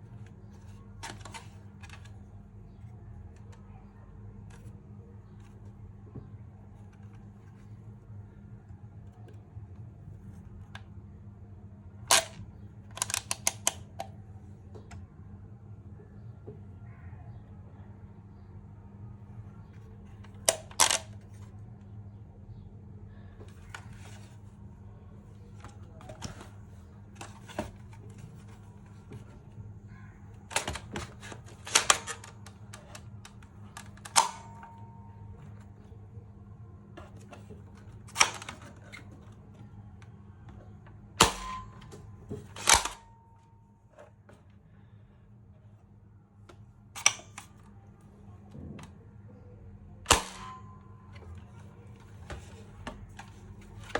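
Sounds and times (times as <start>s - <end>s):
low steady hum: 0.0s - 53.9s
hard plastic parts clicking: 0.1s - 3.7s, 12.1s - 15.0s, 20.2s - 21.5s, 25.4s - 35.9s, 37.0s - 44.4s, 46.5s - 47.7s, 50.1s - 53.9s
hard plastic clicks and clacks: 12.1s - 14.2s.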